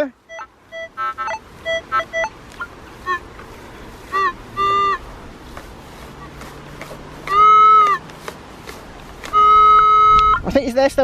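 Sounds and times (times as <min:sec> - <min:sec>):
metal detector beeps: 0:00.3 - 0:02.4.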